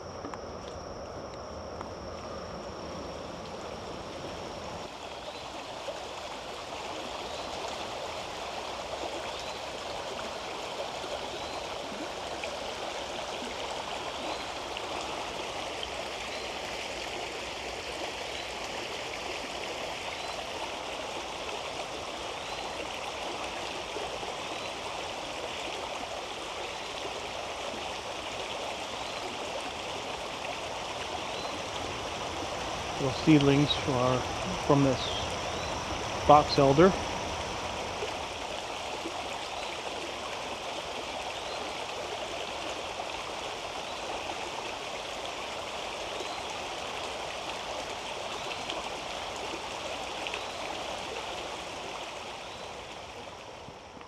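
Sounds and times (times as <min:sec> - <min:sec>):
stream water running: 0:00.0 - 0:53.9
faint high chirp: 0:31.2 - 0:38.1.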